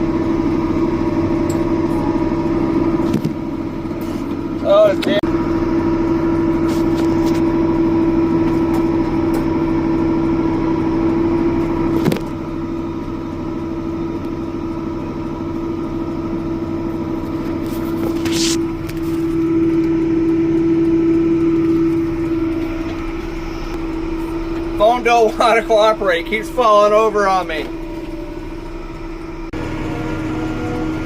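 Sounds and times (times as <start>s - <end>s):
farm vehicle engine hum: 0.0s - 31.0s.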